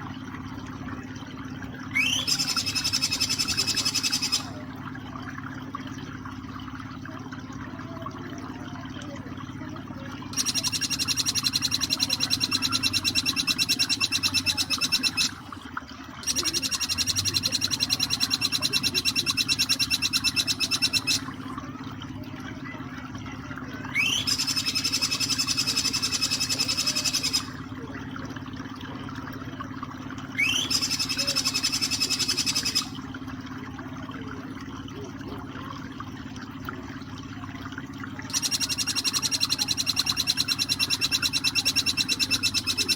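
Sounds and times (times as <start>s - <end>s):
flowing water: 0.0s - 42.9s
bird singing fast high notes: 1.9s - 4.6s, 10.3s - 15.6s, 16.2s - 21.4s, 23.9s - 27.6s, 30.4s - 33.0s.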